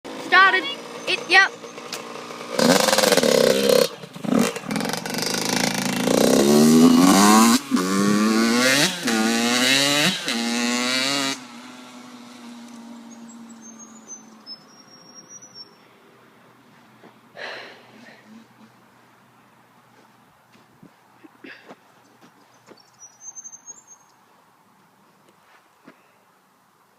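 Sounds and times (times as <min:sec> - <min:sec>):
dirt bike engine revving: 0:00.1 - 0:14.8, 0:17.4 - 0:18.8.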